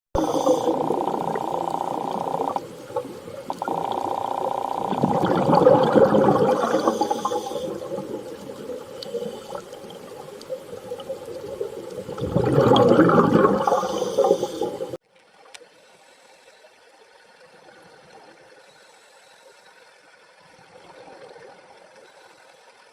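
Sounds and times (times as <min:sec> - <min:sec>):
water rushing and splashing: 0:00.2 - 0:15.0.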